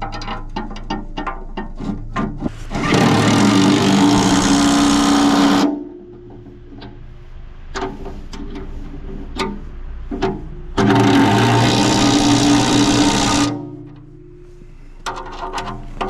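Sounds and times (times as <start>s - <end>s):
low hum: 0.0s - 16.0s
power tool rattling: 2.7s - 5.8s, 10.8s - 13.7s.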